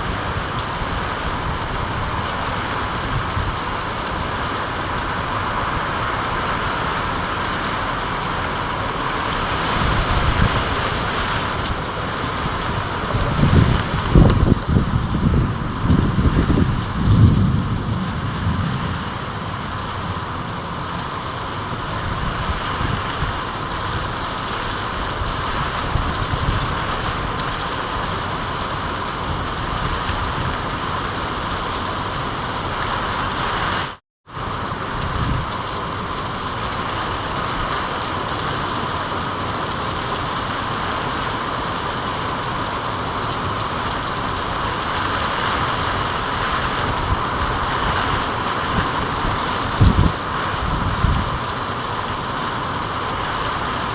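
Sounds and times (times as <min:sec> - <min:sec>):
steady rain: 0:00.0 - 0:53.9
low rumble: 0:13.0 - 0:21.3.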